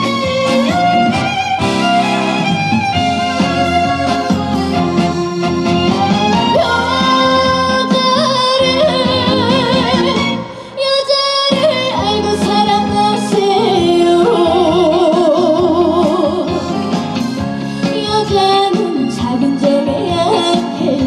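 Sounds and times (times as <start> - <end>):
band accompaniment: 0.0 - 21.0
woman singing with vibrato: 3.9 - 16.9, 17.9 - 21.0.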